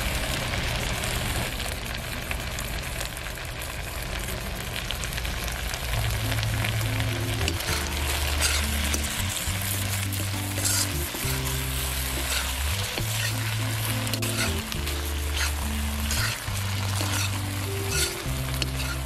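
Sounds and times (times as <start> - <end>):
vegetables frying in a wok: 0.0 - 19.0
background music: 6.0 - 19.0.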